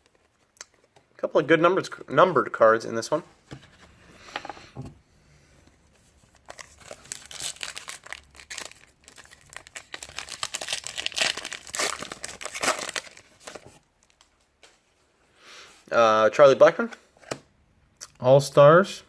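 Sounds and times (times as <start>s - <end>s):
wrapper tearing and crinkling: 6.4s - 14.3s.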